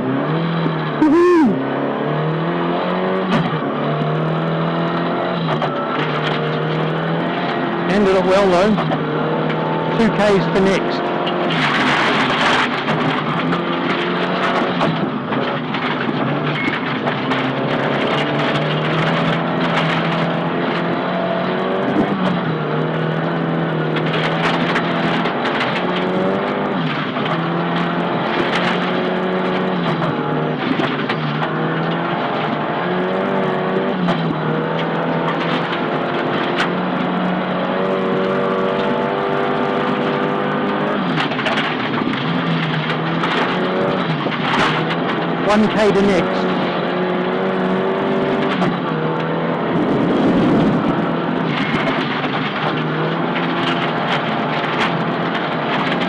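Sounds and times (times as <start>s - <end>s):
rally car engine revving: 0.0s - 56.0s
road and tyre noise: 0.0s - 56.0s.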